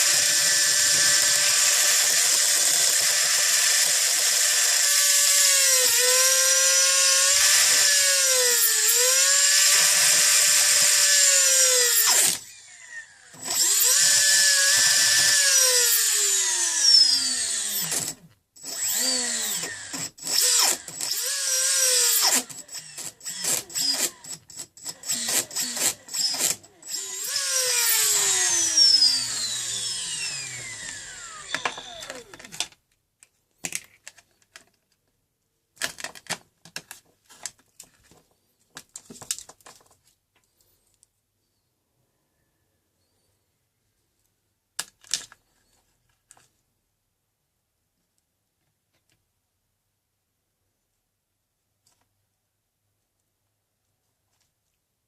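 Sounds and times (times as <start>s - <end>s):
electric motor whining: 25.0s - 32.5s.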